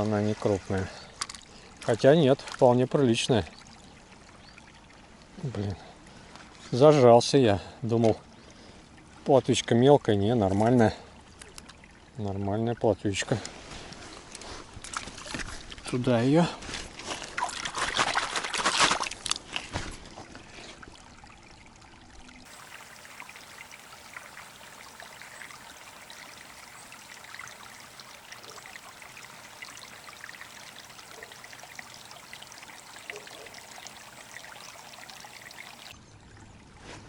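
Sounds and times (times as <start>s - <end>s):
river water trickling and lapping: 0.0s - 15.9s, 16.6s - 37.0s
fish splashing in water: 22.5s - 36.0s.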